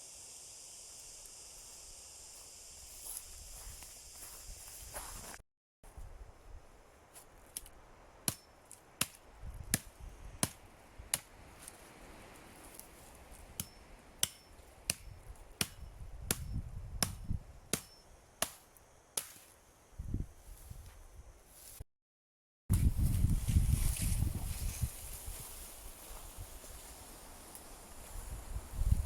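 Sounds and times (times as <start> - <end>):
hand tool chopping knocks: 13.6 - 18.6.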